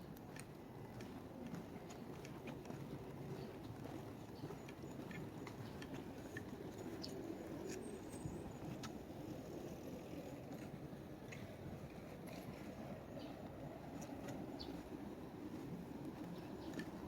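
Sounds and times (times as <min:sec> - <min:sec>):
distant traffic hum: 0:00.0 - 0:17.0
light clicks and taps: 0:00.1 - 0:07.9, 0:15.6 - 0:17.0.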